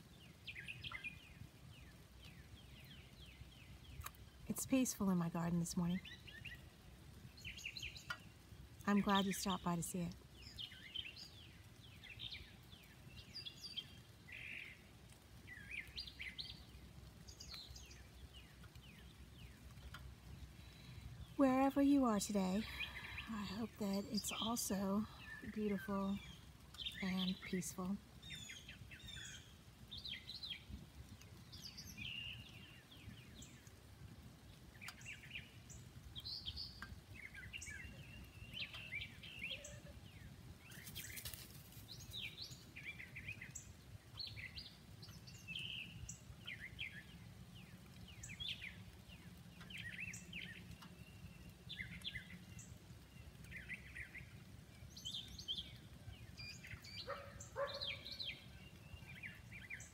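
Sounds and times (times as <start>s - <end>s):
songbirds chirping and singing: 0.1s - 59.9s.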